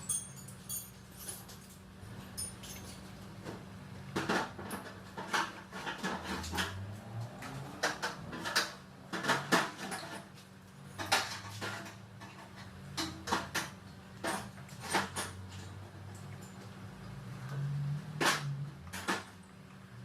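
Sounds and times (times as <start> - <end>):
metal tools clinking: 0.0 - 3.1.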